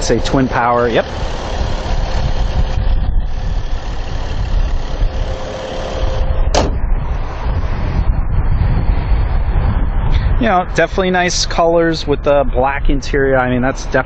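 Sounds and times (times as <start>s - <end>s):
car engine idling: 0.0s - 7.6s
short sharp sound: 5.2s - 7.1s.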